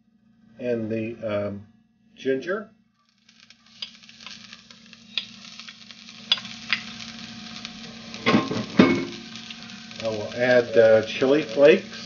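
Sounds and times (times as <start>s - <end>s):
garlic sizzling in hot oil: 3.0s - 12.0s
oil popping and crackling: 3.1s - 12.0s.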